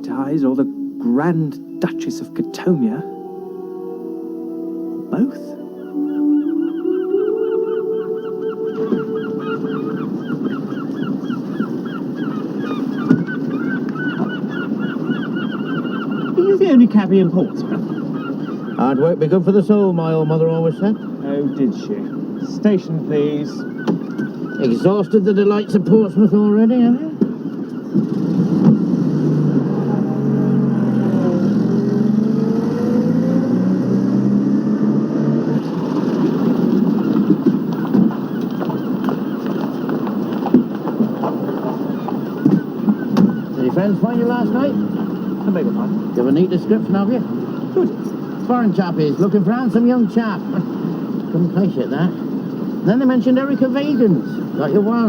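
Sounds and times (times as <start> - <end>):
flock of birds honking: 0.0 - 33.4, 35.4 - 55.0
car engine accelerating: 28.0 - 38.2.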